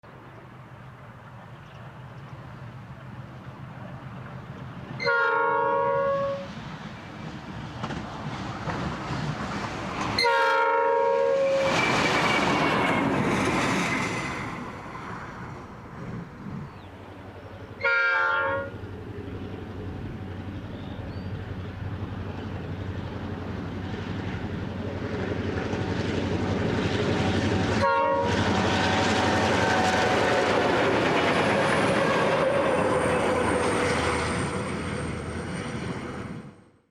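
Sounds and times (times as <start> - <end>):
locomotive engines and wheels rumbling: 0.0 - 36.8
locomotive horn blasts: 5.0 - 6.5, 10.2 - 11.8, 17.8 - 18.8, 27.8 - 30.5.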